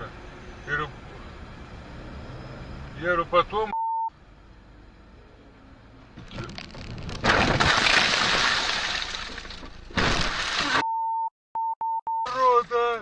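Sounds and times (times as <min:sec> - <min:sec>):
electronic beep tone: 0:03.7 - 0:04.1
car crash impact: 0:06.4 - 0:10.8
glass breaking: 0:07.1 - 0:10.8.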